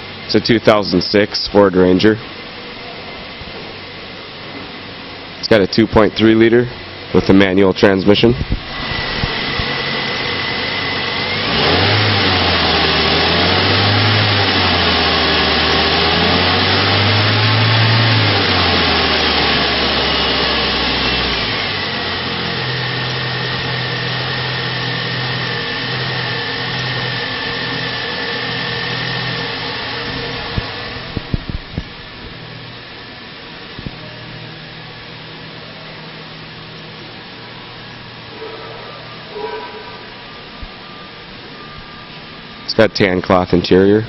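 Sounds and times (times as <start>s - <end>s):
car engine idling and revving: 8.5s - 38.5s.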